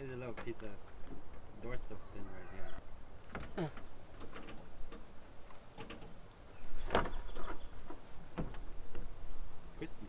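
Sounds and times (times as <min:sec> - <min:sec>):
bird calls: 0:01.6 - 0:03.9, 0:05.7 - 0:09.0.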